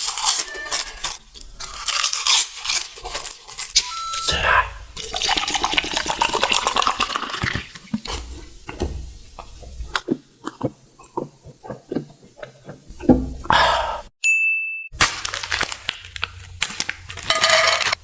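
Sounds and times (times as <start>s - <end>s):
high-pitched beep: 3.8s - 4.8s
chewing smacks: 9.4s - 13.5s
wet mouth clicks: 9.4s - 13.6s.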